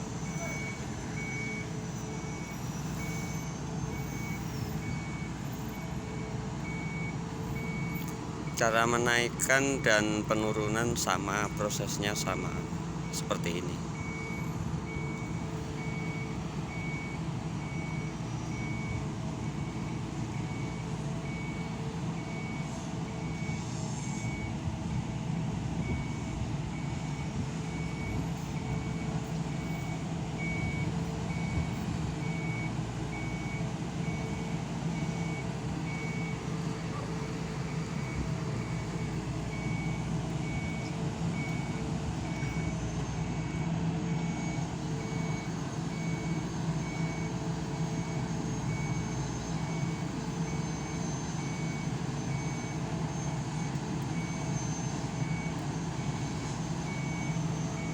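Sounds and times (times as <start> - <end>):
engine droning: 0.0 - 57.9
backup warning beeper: 6.6 - 17.9.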